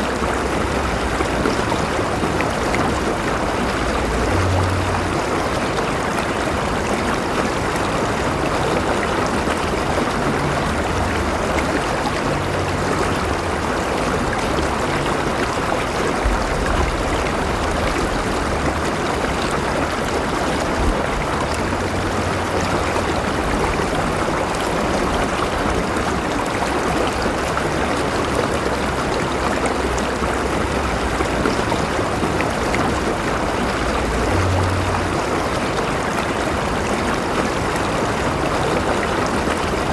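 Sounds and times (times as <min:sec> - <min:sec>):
river water over rocks: 0:00.0 - 0:39.9.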